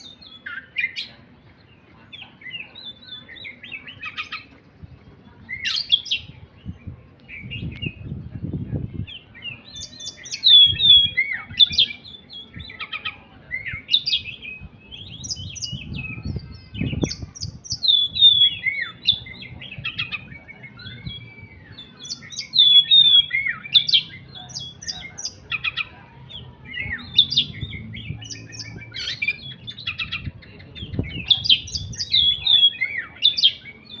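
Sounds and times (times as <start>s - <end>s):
songbird chirping and whistling: 5.4s - 34.0s.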